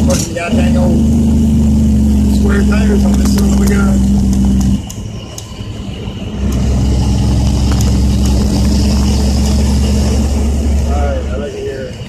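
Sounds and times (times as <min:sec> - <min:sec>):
diesel truck engine from cab: 0:00.0 - 0:12.0
truck rattles and knocks: 0:06.4 - 0:10.9.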